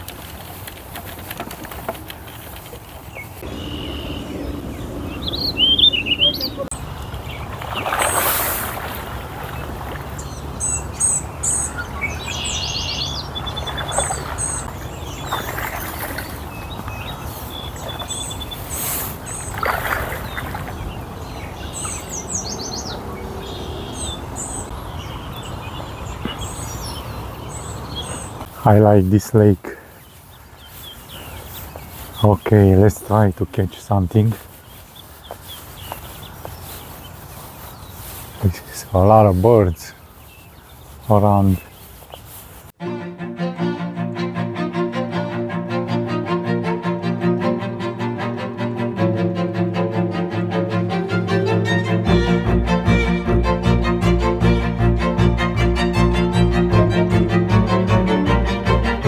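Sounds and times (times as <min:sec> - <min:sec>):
small birds chirping: 0:00.0 - 0:42.8
steady low rumble: 0:03.4 - 0:07.6, 0:44.1 - 0:59.0.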